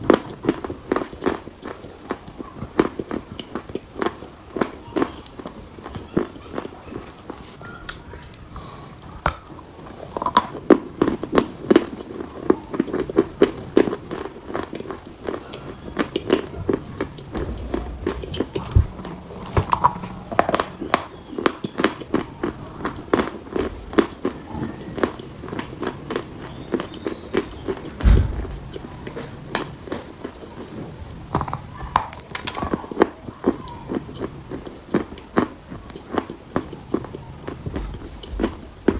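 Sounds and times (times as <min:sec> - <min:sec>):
chalk being chewed: 0:00.0 - 0:28.0, 0:28.8 - 0:38.9
low thump: 0:17.3 - 0:21.0, 0:28.0 - 0:29.3.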